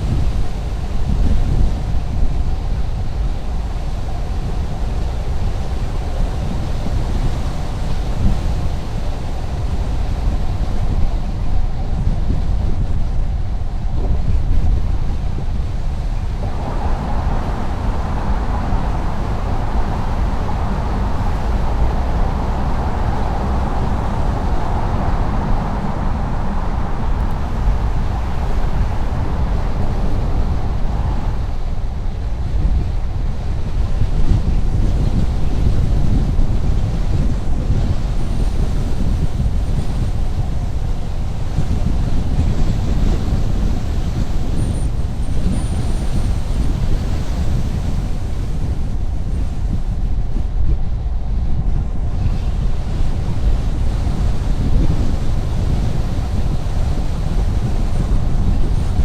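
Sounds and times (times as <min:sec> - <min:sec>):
car driving on highway: 0:00.0 - 0:59.0.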